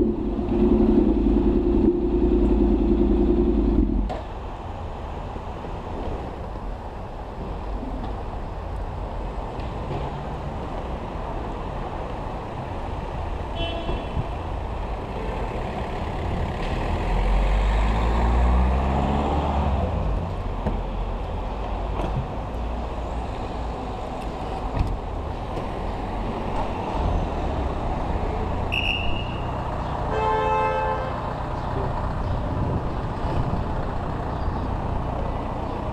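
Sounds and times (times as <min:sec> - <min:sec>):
motorcycle engine rumble: 0:00.0 - 0:04.6
road and wind noise: 0:00.0 - 0:35.9.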